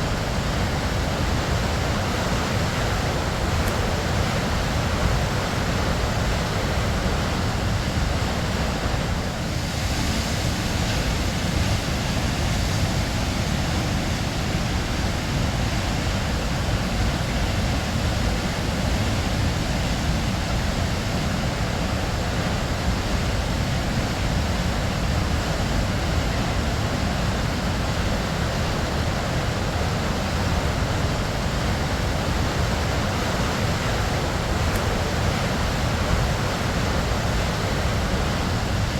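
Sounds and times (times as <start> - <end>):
waterfall rushing: 21.0 - 38.9.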